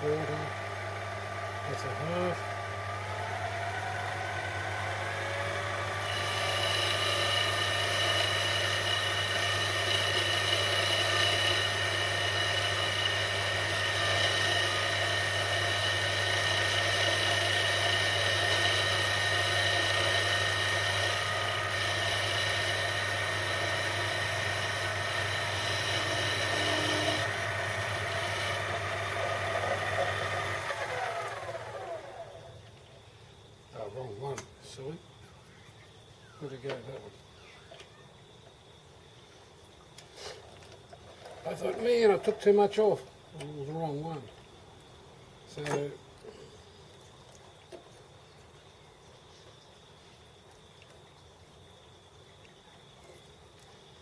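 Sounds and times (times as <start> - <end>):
metal lathe running: 0.0 - 32.3
cutting tool whine: 0.0 - 32.6
motor winding down: 0.0 - 32.6.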